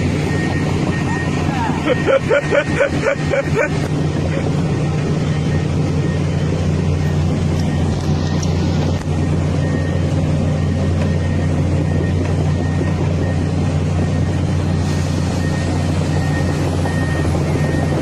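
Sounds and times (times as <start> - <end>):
large engine droning: 0.0 - 18.0.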